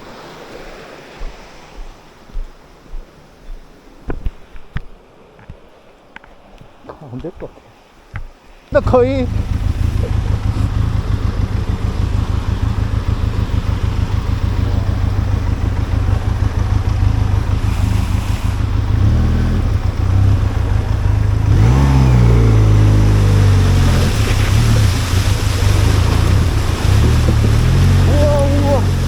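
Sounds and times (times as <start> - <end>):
motorcycle engine revving: 8.8 - 29.0.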